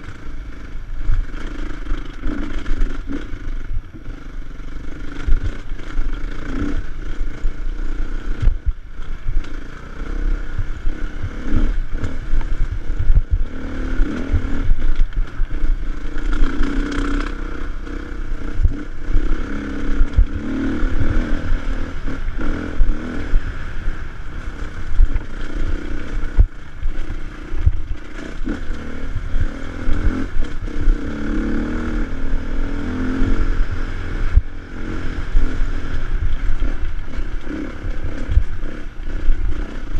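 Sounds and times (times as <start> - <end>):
motorcycle engine revving: 0.0 - 39.9
bike knocks and rattles: 5.0 - 9.6, 24.4 - 31.0.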